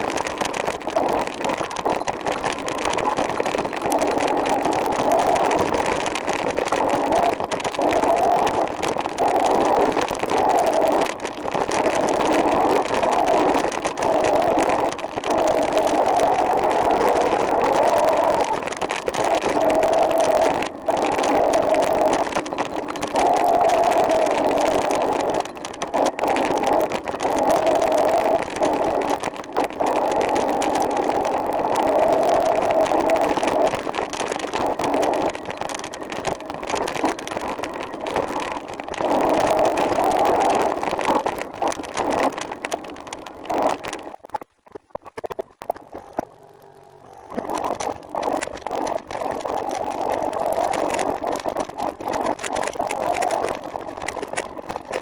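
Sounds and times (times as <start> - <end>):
wavering hum: 45.8 - 49.3.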